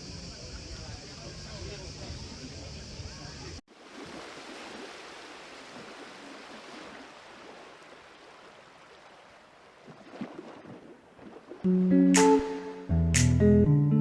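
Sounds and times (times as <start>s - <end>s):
rushing water: 3.7s - 12.7s.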